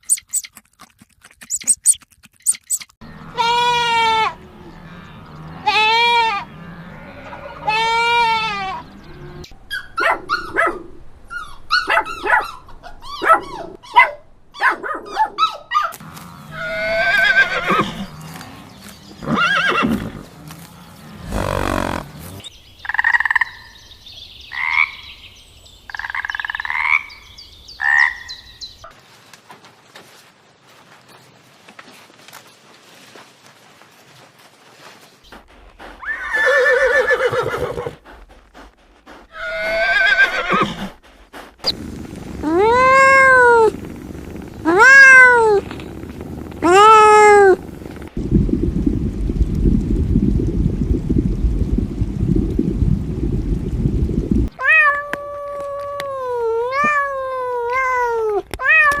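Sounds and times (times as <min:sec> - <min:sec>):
short sharp calls and clicks: 0:00.0 - 0:03.0
long rising and falling animal calls: 0:39.3 - 0:48.1.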